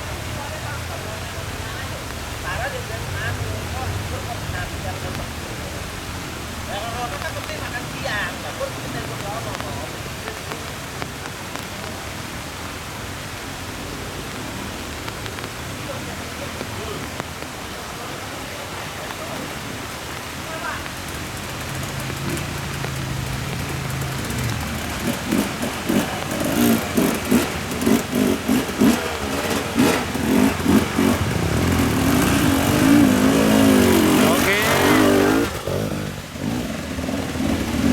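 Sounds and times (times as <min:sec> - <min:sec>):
heavy rain falling: 0:00.0 - 0:37.9
motorcycle engine revving: 0:19.5 - 0:37.9.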